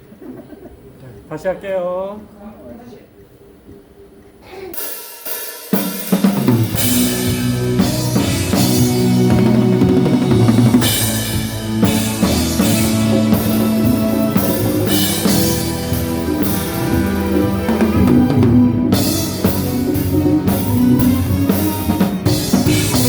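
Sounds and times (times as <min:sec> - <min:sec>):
cymbal crashes: 0:04.8 - 0:23.0
snare drum: 0:04.9 - 0:23.0
sustained pitched instruments: 0:05.2 - 0:23.0.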